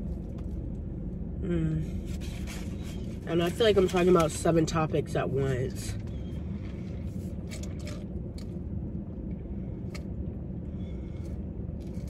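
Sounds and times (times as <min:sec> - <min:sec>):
steady low rumble: 0:00.0 - 0:12.0
chewing and biting food: 0:06.1 - 0:08.6, 0:11.1 - 0:12.0.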